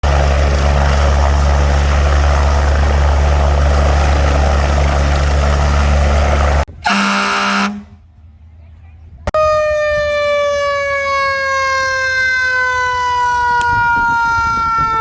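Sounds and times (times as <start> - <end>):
helicopter drone: 0.0 - 6.7
loud horn blast: 6.7 - 8.0.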